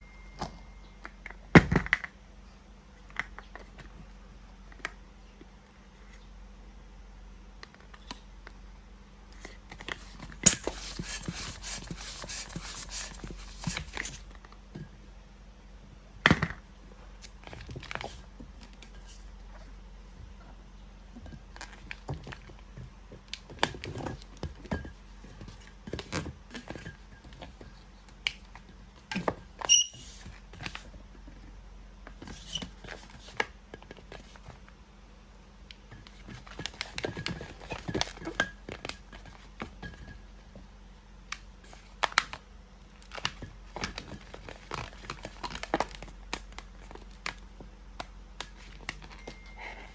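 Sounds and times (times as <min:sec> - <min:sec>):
balloon squeaking and rubbing: 0:10.5 - 0:13.8, 0:29.7 - 0:30.1
short high squeal: 0:29.7 - 0:30.1.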